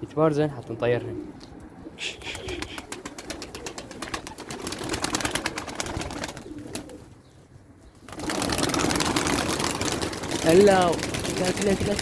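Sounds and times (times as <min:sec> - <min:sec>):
pigeon cooing: 0:01.1 - 0:04.8, 0:05.5 - 0:07.2
pigeon wings flapping: 0:02.2 - 0:07.0, 0:08.0 - 0:12.0.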